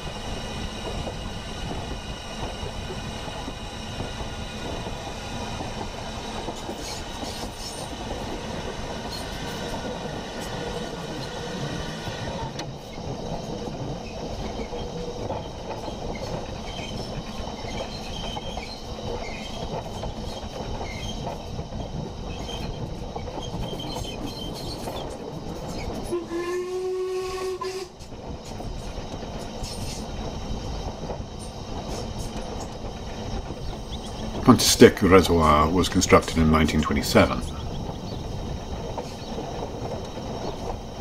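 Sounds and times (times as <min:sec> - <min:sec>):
train rumbling on rails: 0:00.0 - 0:41.0
train whistle blast: 0:26.1 - 0:28.0.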